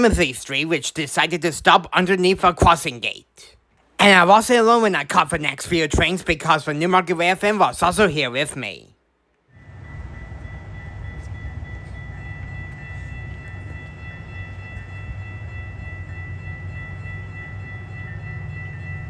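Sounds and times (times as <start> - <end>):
train rumble: 9.6 - 19.0.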